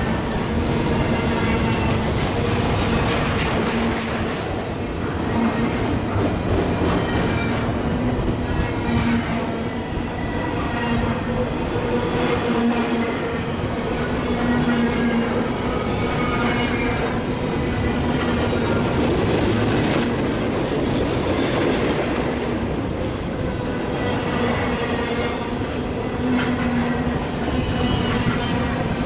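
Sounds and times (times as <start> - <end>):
freight train wheels rumbling: 0.0 - 29.0.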